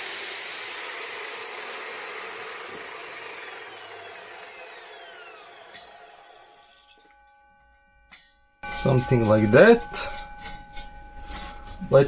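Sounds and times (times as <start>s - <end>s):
power tool motor spinning down: 0.0s - 7.0s.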